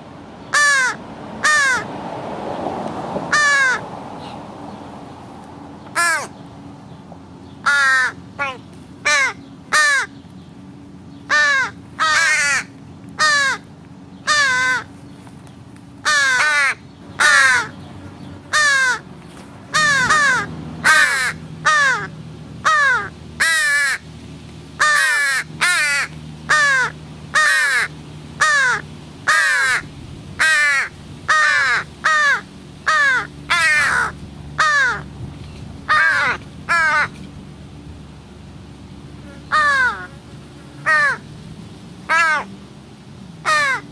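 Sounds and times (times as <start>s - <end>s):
crows cawing: 0.5s - 1.9s, 3.3s - 3.8s, 5.9s - 6.4s, 7.6s - 10.2s, 11.3s - 14.9s, 16.0s - 17.8s, 18.4s - 19.1s, 19.7s - 24.0s, 24.8s - 35.1s, 35.8s - 37.2s, 39.2s - 40.2s, 40.8s - 41.3s, 42.1s - 42.5s, 43.4s - 43.9s.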